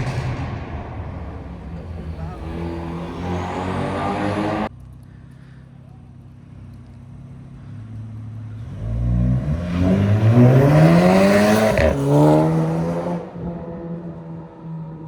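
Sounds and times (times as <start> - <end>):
car engine revving hard: 1.8 - 4.7, 8.6 - 14.2.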